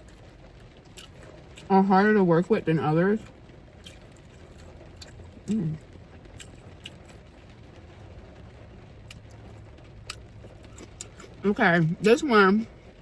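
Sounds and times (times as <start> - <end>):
person humming: 5.5 - 5.8.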